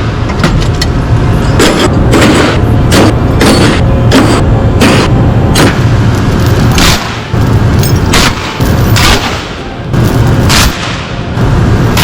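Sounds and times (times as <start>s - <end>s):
steady low hum: 0.0s - 12.0s
steel chains clanking against metal: 6.1s - 9.1s, 9.9s - 10.5s.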